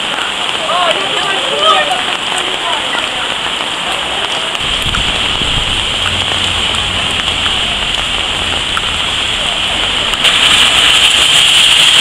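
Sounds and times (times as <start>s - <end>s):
rain on pavement and plastic covers: 0.0s - 12.0s
low rumble: 4.6s - 12.0s.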